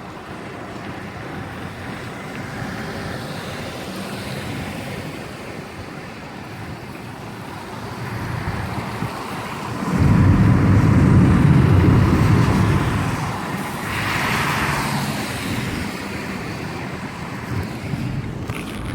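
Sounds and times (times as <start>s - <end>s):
wind and rain rushing: 0.0s - 18.9s
thunder rumbling: 8.2s - 14.3s.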